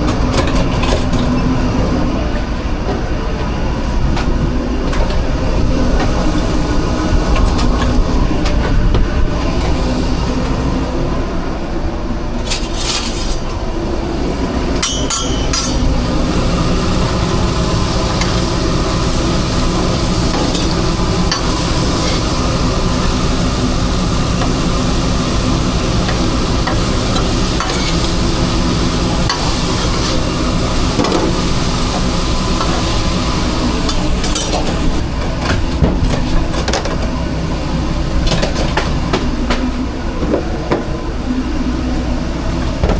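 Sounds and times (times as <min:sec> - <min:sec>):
kitchen work clicks and clatter: 0:00.0 - 0:01.4, 0:12.4 - 0:13.5, 0:14.8 - 0:15.8, 0:26.0 - 0:28.0, 0:33.9 - 0:37.1, 0:38.2 - 0:40.9
low machine rumble: 0:00.0 - 0:42.9.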